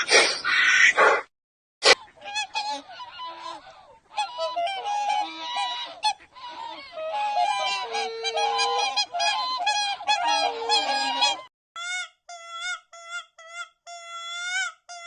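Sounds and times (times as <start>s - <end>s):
single goose honking: 2.0s - 11.4s
flock of geese honking: 2.1s - 11.5s.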